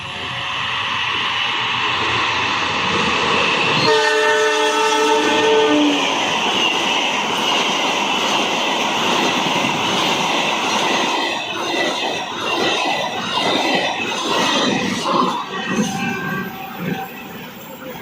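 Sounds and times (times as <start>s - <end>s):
train rushing past: 0.0s - 18.0s
train horn: 3.8s - 6.1s.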